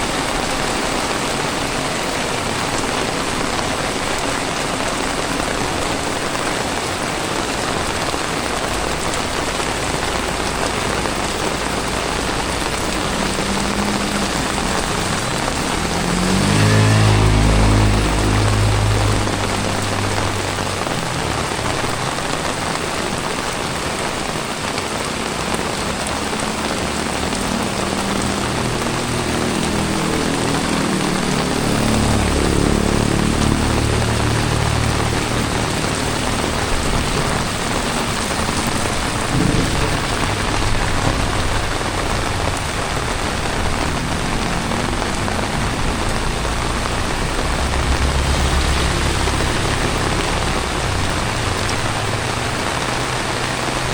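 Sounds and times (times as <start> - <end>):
heavy rain falling: 0.0 - 53.9
low rumble: 28.0 - 53.3.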